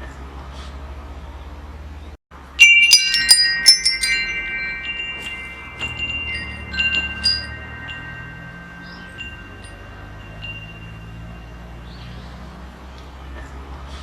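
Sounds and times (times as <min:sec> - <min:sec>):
metal wind chimes ringing: 0:02.5 - 0:12.5.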